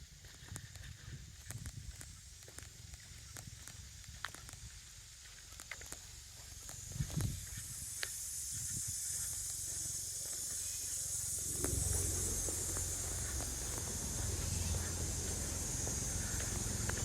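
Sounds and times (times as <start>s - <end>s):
footsteps on a path: 0.0s - 17.0s
high hiss: 3.6s - 17.0s.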